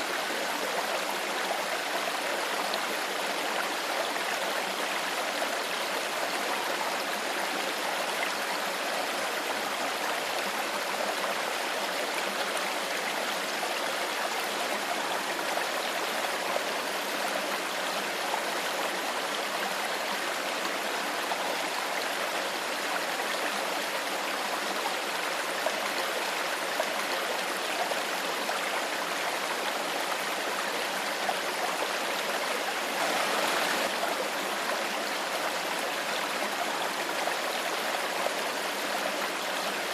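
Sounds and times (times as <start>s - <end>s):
stream burbling over stones: 0.0s - 39.9s.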